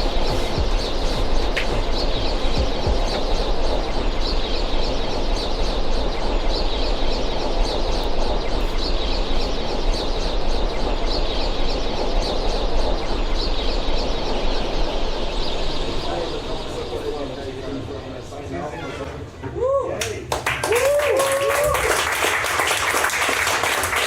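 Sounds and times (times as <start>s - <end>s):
low bass hum: 0.0s - 18.6s
synthesized noise wash: 0.0s - 18.6s.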